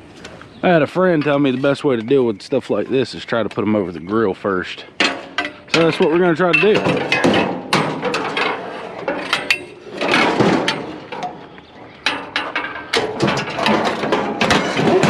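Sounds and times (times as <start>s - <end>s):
scrap metal clanking and scraping: 5.0s - 15.0s.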